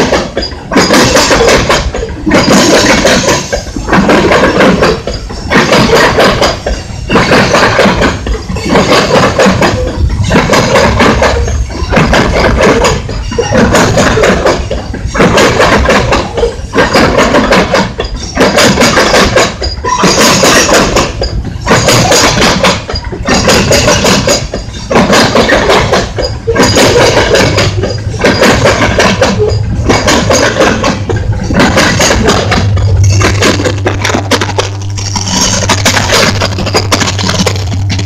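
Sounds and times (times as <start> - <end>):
train wheels clattering over track: 0.0 - 38.0.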